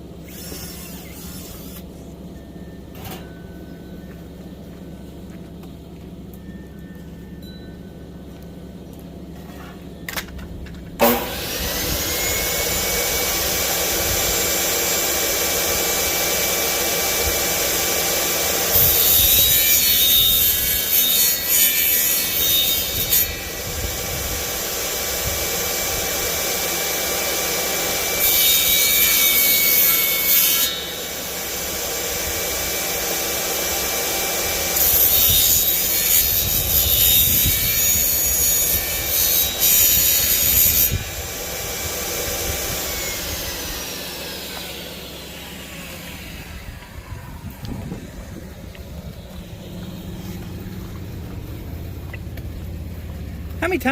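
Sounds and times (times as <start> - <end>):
saw cutting through wood: 0.0 - 2.1, 11.0 - 51.5
electric saw motor whine: 0.0 - 53.9.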